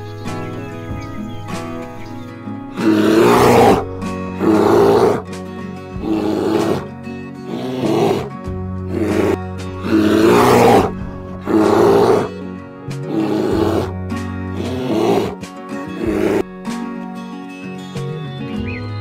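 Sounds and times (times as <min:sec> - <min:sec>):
background music: 0:00.0 - 0:19.0
large animal harsh breathy calls: 0:02.7 - 0:05.3, 0:05.9 - 0:12.4, 0:13.0 - 0:16.5.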